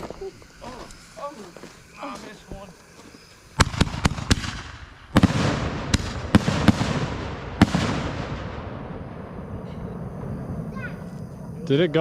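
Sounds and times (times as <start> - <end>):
firework crackle: 0.0 - 11.6
firework bangs: 3.3 - 11.6.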